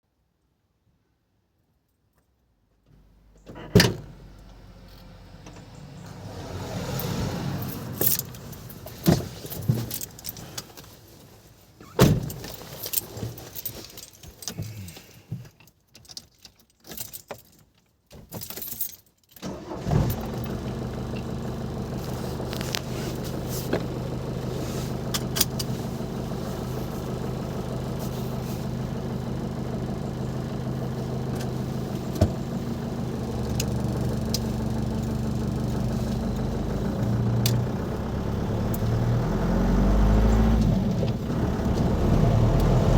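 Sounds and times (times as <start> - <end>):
diesel engine starting and idling: 3.0 - 10.6, 19.4 - 42.9.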